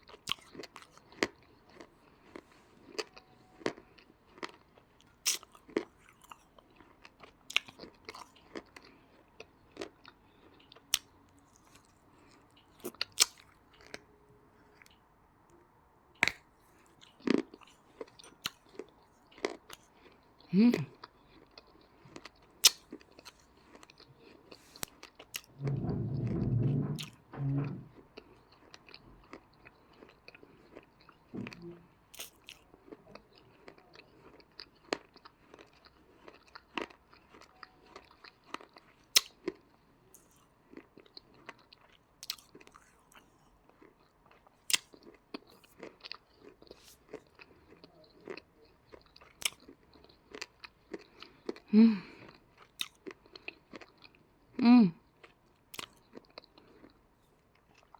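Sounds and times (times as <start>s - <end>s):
crunching bites and chewing: 0.0s - 14.1s, 16.2s - 25.5s, 27.0s - 54.4s, 55.1s - 57.9s
low muffled thump: 25.6s - 27.9s.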